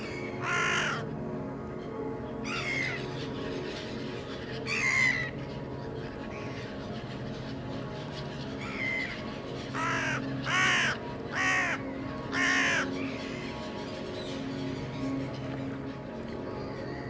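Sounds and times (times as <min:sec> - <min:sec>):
bird cawing: 0:00.4 - 0:01.1, 0:09.8 - 0:12.9.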